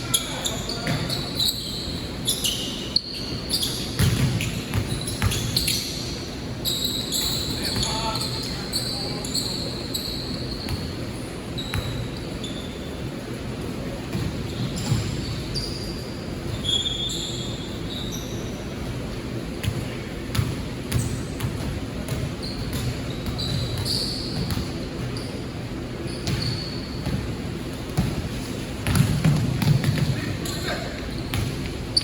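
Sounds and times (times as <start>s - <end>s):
gym background noise: 0.0s - 32.0s
sneakers squeaking: 0.0s - 32.0s
basketball dribbling thuds: 27.9s - 30.3s.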